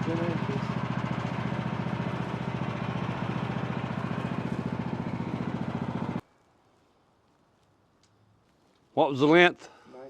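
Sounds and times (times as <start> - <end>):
small gasoline engine idling: 0.0 - 6.2.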